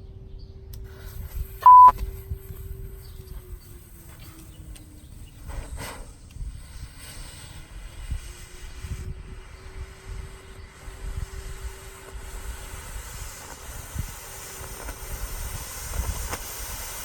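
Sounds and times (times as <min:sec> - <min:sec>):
faint steady hum: 0:00.0 - 0:17.0
low outdoor rumble: 0:00.0 - 0:17.0
loud electronic beep: 0:01.6 - 0:01.9.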